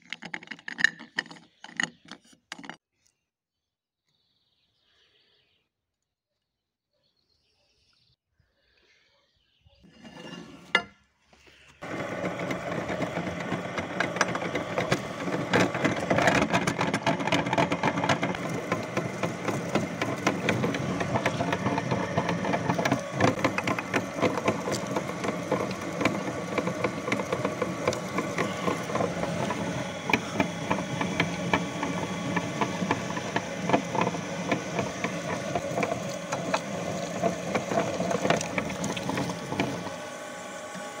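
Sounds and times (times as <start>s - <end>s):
crackling and clicking of crushing: 0.0s - 3.2s
meat grinder motor humming: 11.8s - 41.0s.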